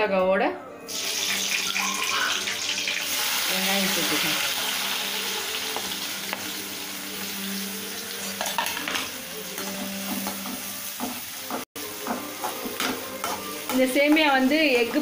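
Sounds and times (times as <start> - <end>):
onions sizzling in hot oil: 0.9 - 15.0
spatula scraping and tapping pan: 8.4 - 14.6.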